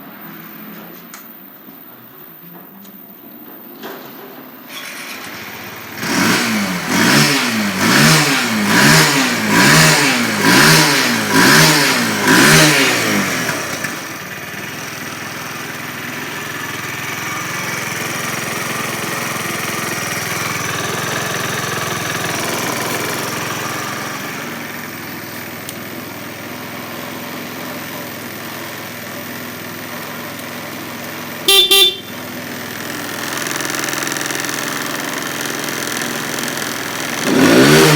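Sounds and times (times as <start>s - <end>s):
motorcycle engine revving: 4.9s - 37.9s
horn beep: 31.5s - 32.2s.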